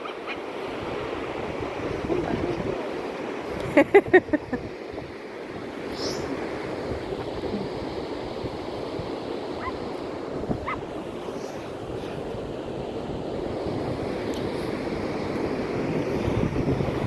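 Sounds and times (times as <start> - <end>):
ocean surf washing on shore: 0.0 - 17.0
wind buffeting microphone: 0.0 - 17.0.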